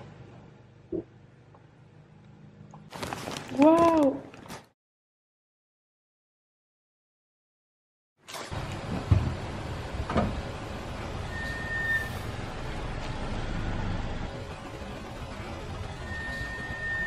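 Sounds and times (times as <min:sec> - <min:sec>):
car engine rumble: 0:08.4 - 0:17.0.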